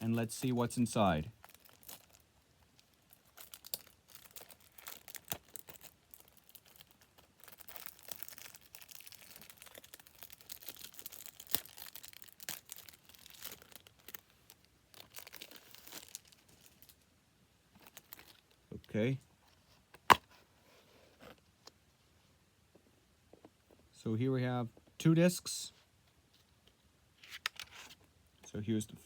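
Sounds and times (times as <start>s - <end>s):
plastic wrapping tearing and crinkling: 1.3s - 17.0s, 17.8s - 18.6s.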